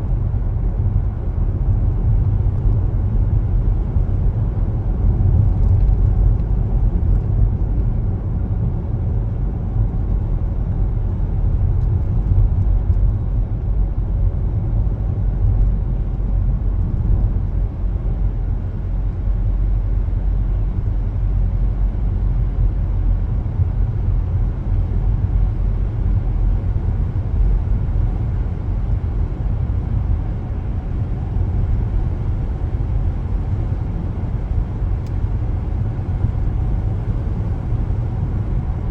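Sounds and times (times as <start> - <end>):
road and tyre noise: 0.0 - 38.9
car engine: 21.5 - 38.9.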